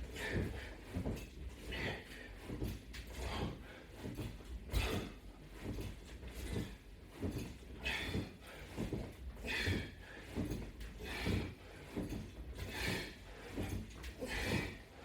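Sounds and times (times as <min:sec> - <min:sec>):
man breathing hard: 0:00.0 - 0:01.0, 0:01.6 - 0:04.0, 0:04.7 - 0:05.3, 0:07.8 - 0:12.0, 0:12.6 - 0:15.0.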